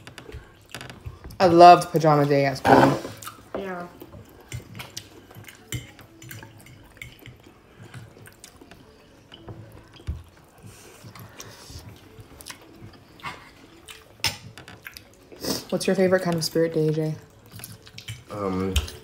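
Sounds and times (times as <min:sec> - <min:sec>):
person chewing with wet smacks: 0:04.1 - 0:16.4, 0:17.2 - 0:19.0.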